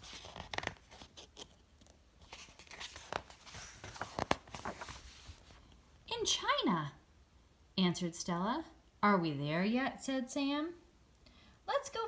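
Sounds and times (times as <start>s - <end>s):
book pages turning: 0.0s - 5.7s.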